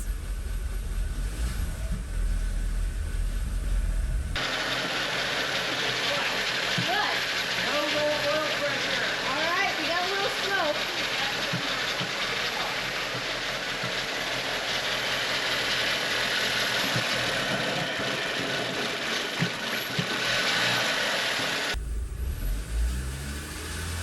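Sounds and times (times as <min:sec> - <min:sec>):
deep low rumble: 0:00.0 - 0:04.4, 0:21.8 - 0:23.8
car engine running: 0:00.0 - 0:24.0.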